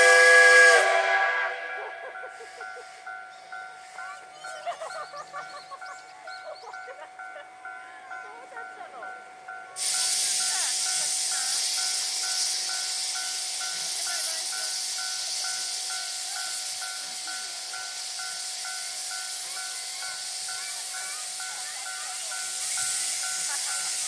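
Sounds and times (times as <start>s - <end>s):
steam hissing: 9.7s - 24.0s.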